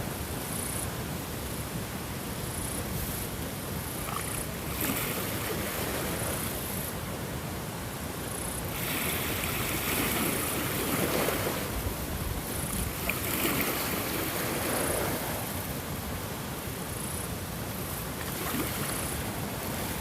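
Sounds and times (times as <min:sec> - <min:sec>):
ocean waves washing in: 0:08.3 - 0:20.0.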